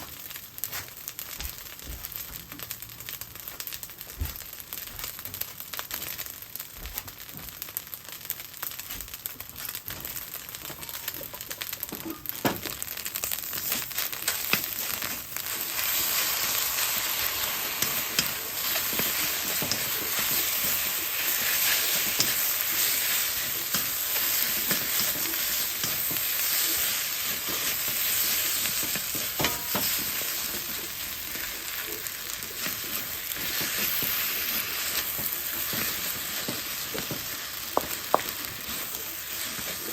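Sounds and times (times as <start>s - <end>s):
food sizzling in a frying pan: 0.0s - 39.9s.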